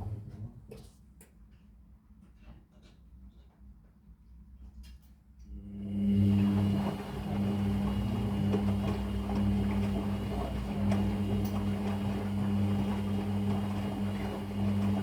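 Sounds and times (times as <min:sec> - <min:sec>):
washing machine humming: 0:00.0 - 0:00.9, 0:05.5 - 0:15.0.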